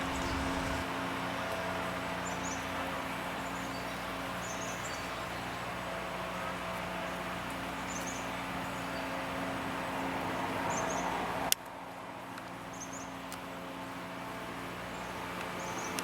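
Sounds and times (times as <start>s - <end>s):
outdoor background hum: 0.0s - 16.0s.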